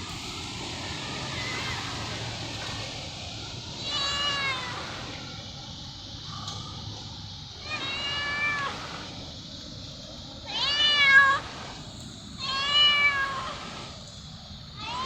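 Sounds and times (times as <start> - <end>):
cat meowing: 3.8 - 4.9, 7.6 - 8.9, 10.5 - 11.4, 12.4 - 13.6, 14.8 - 15.0.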